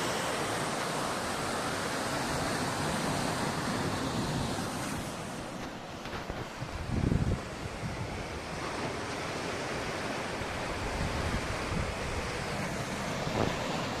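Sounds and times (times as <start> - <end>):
waves breaking on shore: 0.0 - 14.0
wind buffeting microphone: 6.1 - 8.8, 10.4 - 14.0.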